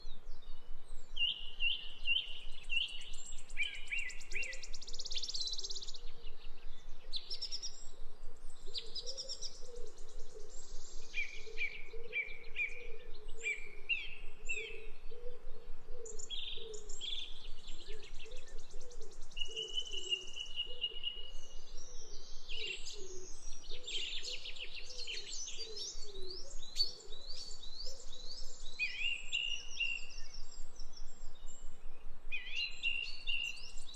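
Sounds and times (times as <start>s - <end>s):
songbirds singing: 0.0s - 33.9s
long held bird whistle: 1.2s - 5.8s.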